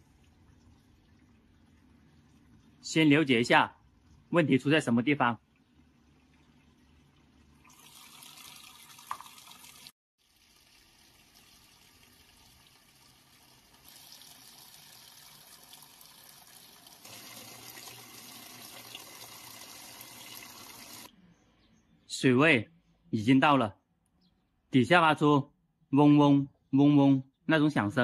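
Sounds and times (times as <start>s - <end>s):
water pouring into washing machine: 5.5s - 21.1s.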